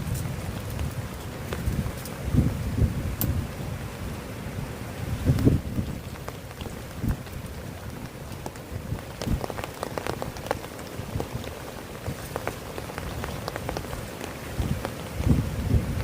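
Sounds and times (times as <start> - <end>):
heavy rain on a tent: 0.0 - 16.0
sharp raindrop hits: 5.1 - 16.0.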